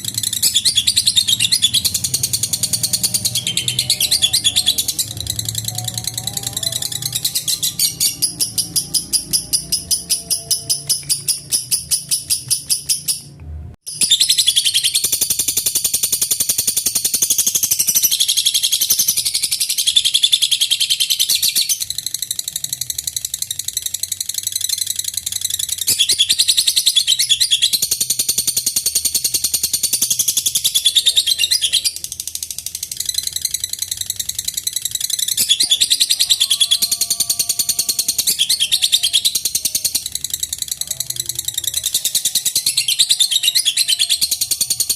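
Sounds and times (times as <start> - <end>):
lovebird chattering trill: 0.0 - 13.3, 13.9 - 44.9.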